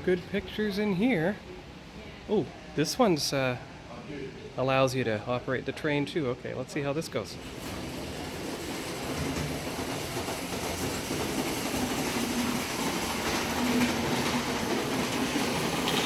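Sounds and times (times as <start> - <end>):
background noise: 0.0 - 16.0
model train motor hum: 7.4 - 16.0.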